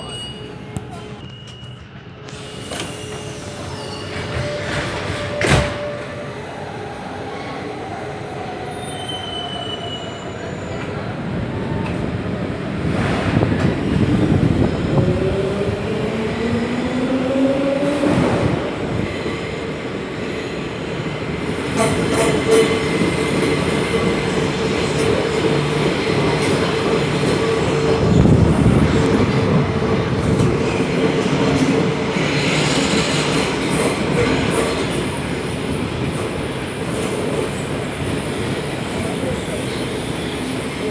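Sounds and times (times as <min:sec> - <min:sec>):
wheels squealing on rails: 0:00.0 - 0:12.0, 0:20.3 - 0:40.9.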